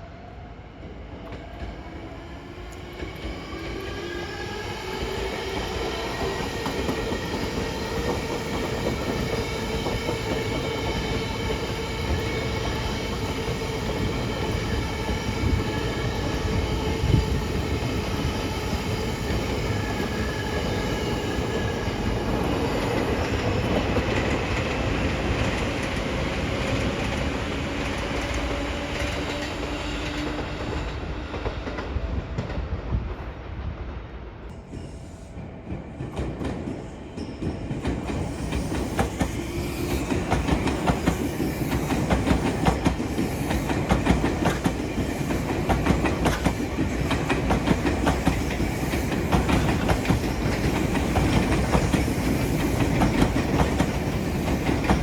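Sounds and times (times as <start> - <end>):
train wheels clattering on rails: 4.8 - 33.1, 34.5 - 55.0.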